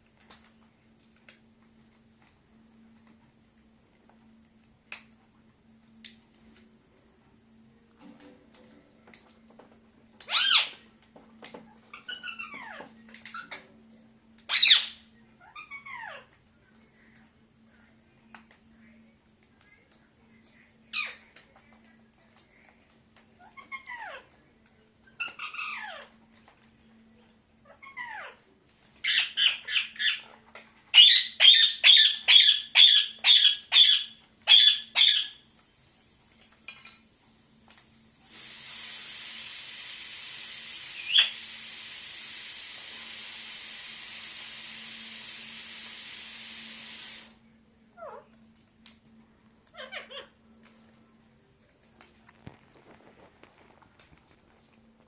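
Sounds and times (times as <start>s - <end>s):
parakeet calling: 10.3s - 10.8s, 11.9s - 13.6s, 14.5s - 16.2s, 25.2s - 26.1s, 29.0s - 30.2s, 30.9s - 35.4s, 41.0s - 41.4s, 49.7s - 50.4s
parakeet harsh squawks: 10.3s - 10.8s, 14.5s - 16.2s, 29.0s - 30.2s, 31.0s - 35.4s, 41.0s - 41.4s, 49.7s - 50.4s
steady hiss: 35.4s - 47.8s.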